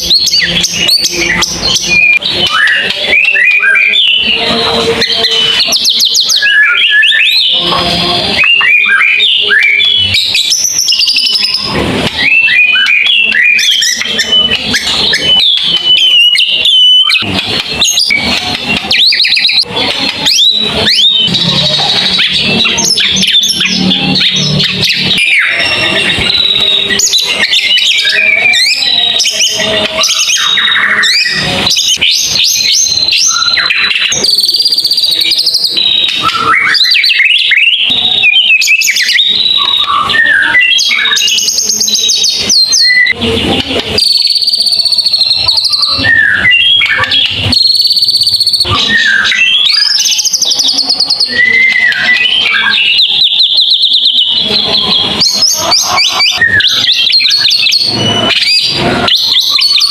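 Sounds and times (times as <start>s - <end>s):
songbird whistles and trills: 0.0s - 43.2s, 43.8s - 59.9s.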